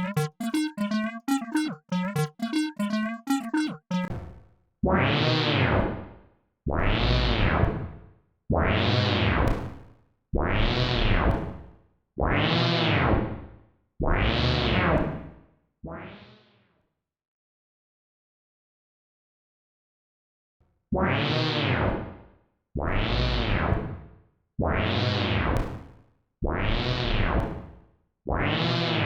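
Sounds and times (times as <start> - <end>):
bass synth repeating note: 0.0 - 4.2.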